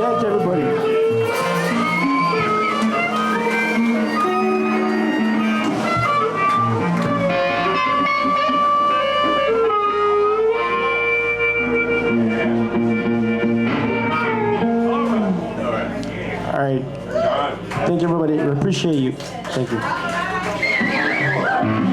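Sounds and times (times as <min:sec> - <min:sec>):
bass and drums: 0:00.0 - 0:16.5
electric guitar lines: 0:00.0 - 0:17.2, 0:20.7 - 0:21.9.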